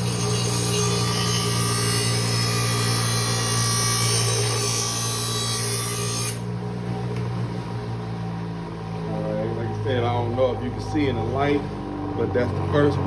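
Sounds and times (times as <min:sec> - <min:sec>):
blade grinding with a hiss: 0:00.0 - 0:06.5
bench grinder motor humming: 0:00.0 - 0:06.6.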